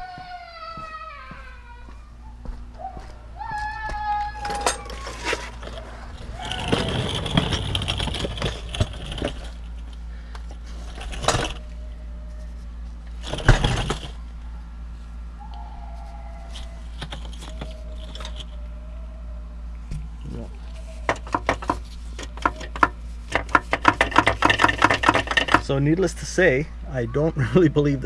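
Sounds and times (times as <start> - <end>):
metal debris clinking and rattling: 4.4 - 10.0, 10.8 - 11.6.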